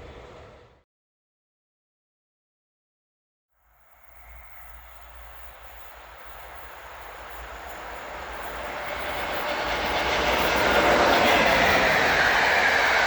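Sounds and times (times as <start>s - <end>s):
train rumble on rails: 0.0s - 0.8s, 4.2s - 13.0s.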